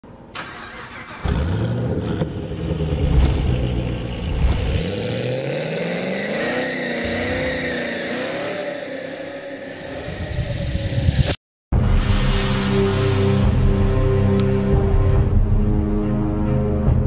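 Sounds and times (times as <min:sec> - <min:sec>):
car engine revving up: 0:01.0 - 0:11.4.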